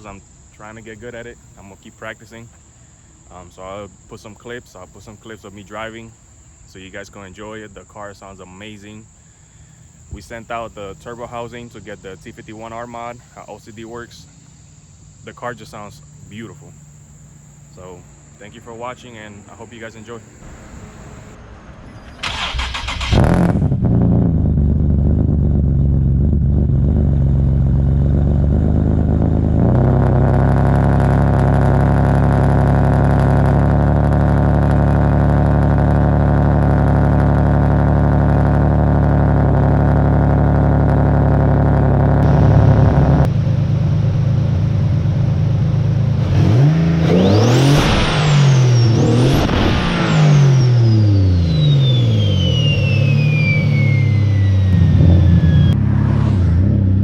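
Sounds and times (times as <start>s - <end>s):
car engine revving: 19.4s - 57.0s
turbo whistle: 47.1s - 55.8s.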